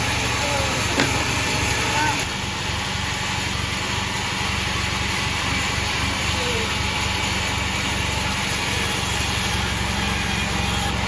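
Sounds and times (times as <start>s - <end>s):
sawmill machine sawing logs: 0.0s - 11.0s.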